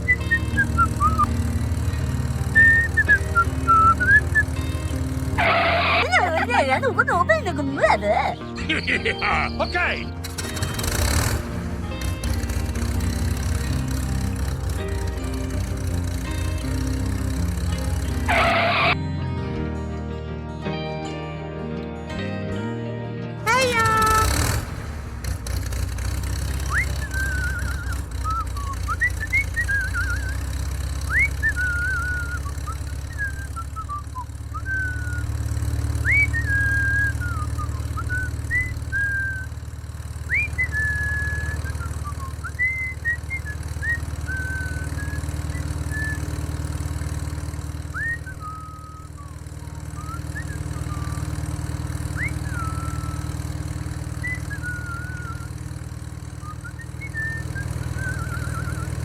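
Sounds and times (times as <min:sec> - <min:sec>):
chirping whistles: 0:00.0 - 0:01.3, 0:02.6 - 0:04.6, 0:26.6 - 0:30.5, 0:31.1 - 0:35.3, 0:36.0 - 0:39.6, 0:40.3 - 0:46.5, 0:47.9 - 0:51.4, 0:52.1 - 0:53.4, 0:54.2 - 0:55.6, 0:56.4 - 0:59.0
small motor humming: 0:00.0 - 0:07.3, 0:10.2 - 0:19.0, 0:23.8 - 0:59.0.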